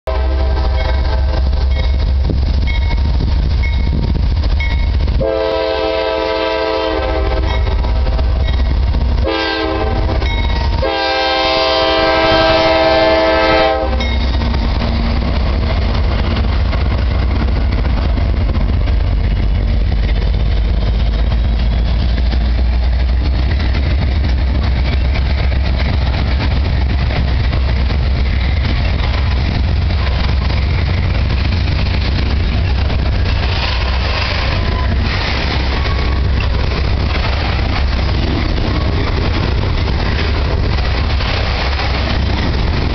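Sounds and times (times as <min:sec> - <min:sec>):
train rumble and wheel clatter: 0:00.0 - 0:42.9
locomotive horn blasts: 0:00.1 - 0:01.6, 0:05.2 - 0:08.1, 0:09.2 - 0:14.2.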